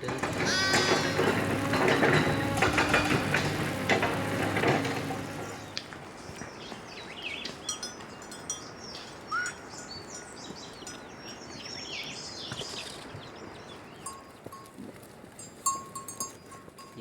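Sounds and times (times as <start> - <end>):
small birds chirping: 4.8 - 14.6.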